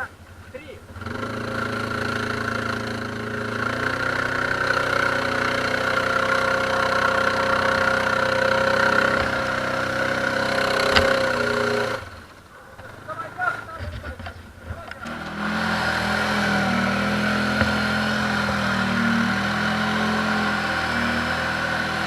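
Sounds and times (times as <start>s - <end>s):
atv engine running: 0.0s - 22.0s
short knock: 17.4s - 18.3s.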